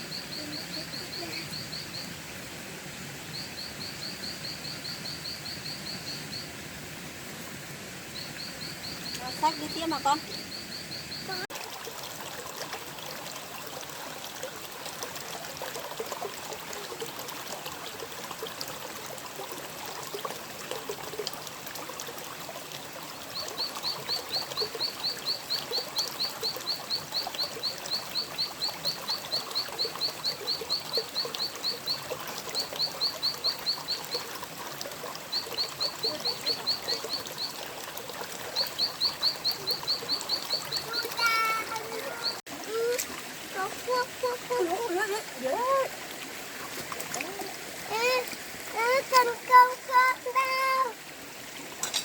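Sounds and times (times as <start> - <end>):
stream water trickling: 0.0 - 52.0.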